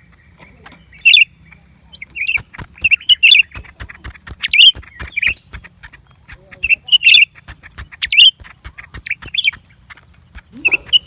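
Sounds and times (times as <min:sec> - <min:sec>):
bird calling sharp high notes: 0:10.5 - 0:11.0.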